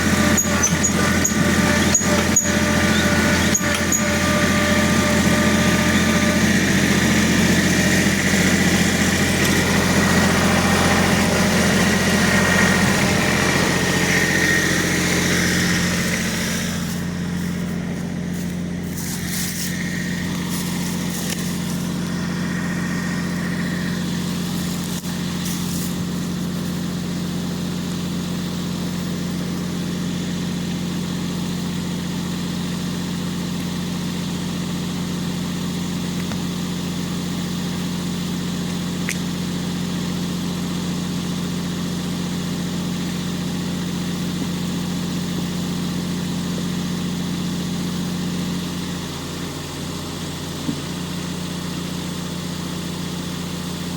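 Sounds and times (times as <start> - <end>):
electric chainsaw sharpener humming: 0.0 - 31.3
brief hissing: 16.1 - 26.1.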